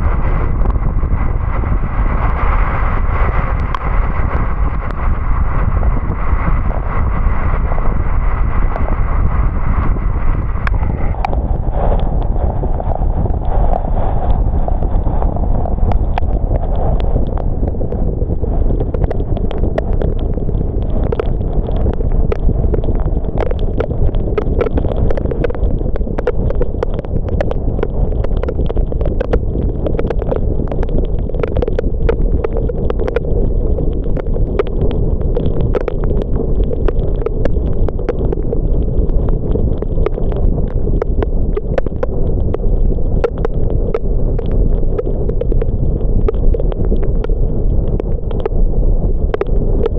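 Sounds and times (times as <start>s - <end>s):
road and tyre rumble: 0.0s - 48.6s
raindrops ticking on car: 15.8s - 49.9s.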